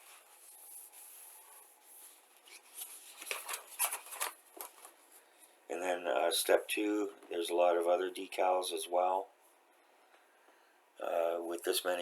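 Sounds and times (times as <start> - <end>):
paper crackles: 0.0 - 5.1
paper rustling: 0.0 - 5.4.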